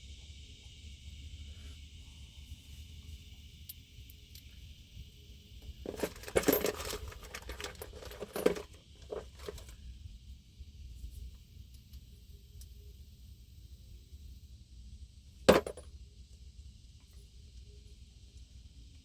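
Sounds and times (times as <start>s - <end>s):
metal parts clinking: 5.8s - 9.7s, 15.5s - 15.8s.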